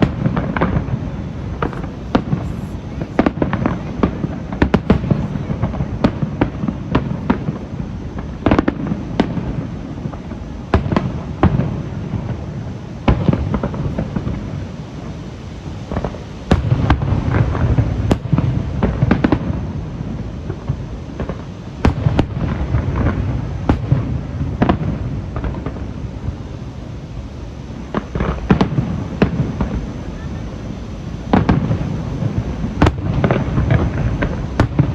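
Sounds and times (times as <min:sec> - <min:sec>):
firework shells bursting: 0:00.0 - 0:12.4, 0:27.8 - 0:34.9
low rolling rumble: 0:00.0 - 0:21.2.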